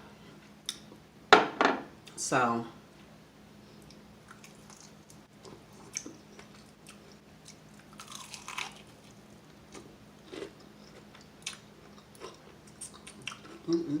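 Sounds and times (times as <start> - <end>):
crunching and chewing chicken wings: 3.8 - 13.8.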